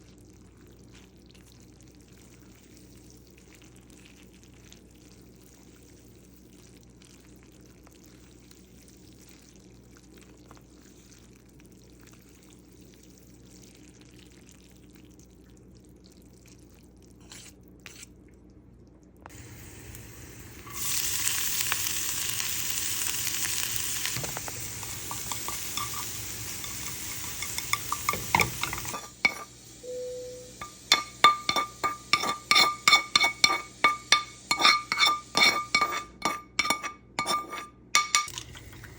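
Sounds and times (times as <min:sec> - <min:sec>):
loud steady hissing: 0:19.3 - 0:35.8
spoon clinking against glass: 0:25.0 - 0:38.5
short beep: 0:29.8 - 0:30.7.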